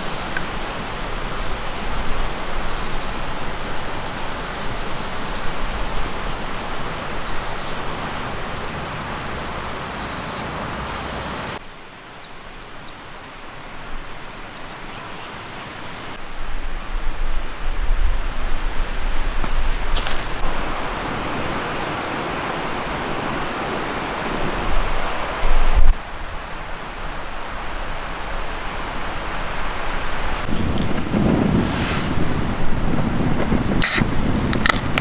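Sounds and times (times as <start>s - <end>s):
small birds trilling and chirping: 0.0s - 13.0s, 14.2s - 16.9s
rushing background noise: 2.8s - 11.6s.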